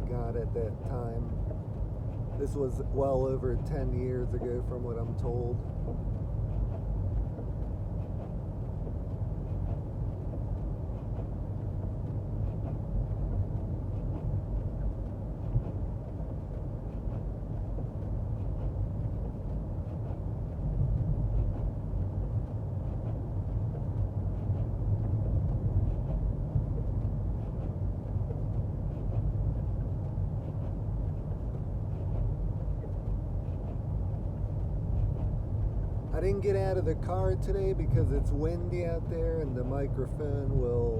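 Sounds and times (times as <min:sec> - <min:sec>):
car cabin low rumble: 0:00.0 - 0:40.9.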